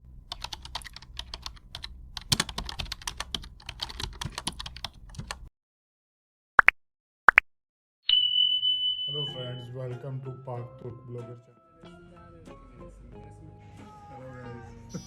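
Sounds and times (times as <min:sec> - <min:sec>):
keyboard typing clicks: 0:00.3 - 0:05.4
short rising chirp: 0:08.1 - 0:09.4.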